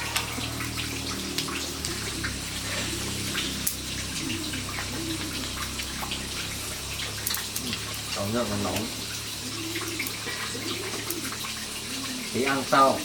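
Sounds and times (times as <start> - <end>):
steady hiss: 0.0 - 13.0
small ticks and clicks: 4.7 - 8.0.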